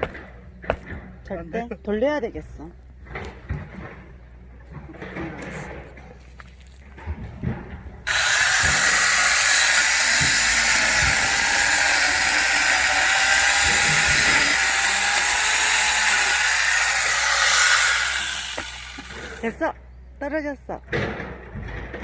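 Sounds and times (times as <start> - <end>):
electric chainsaw cutting log: 8.1 - 19.5.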